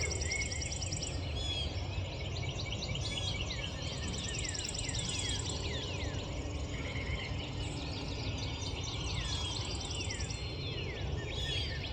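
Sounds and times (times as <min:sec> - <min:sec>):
songbirds singing: 0:00.0 - 0:11.9.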